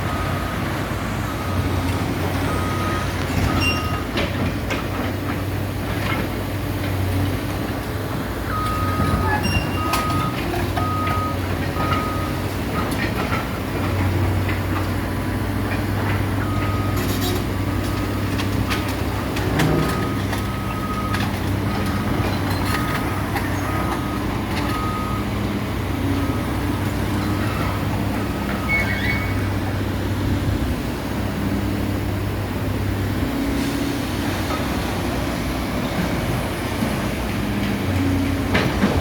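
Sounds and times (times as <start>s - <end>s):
reversing alarm beeping: 0.0s - 4.1s, 8.5s - 12.4s, 19.7s - 25.4s, 26.0s - 29.5s
heavy machine engine running: 0.0s - 39.0s
clanks and knocks: 38.5s - 39.0s.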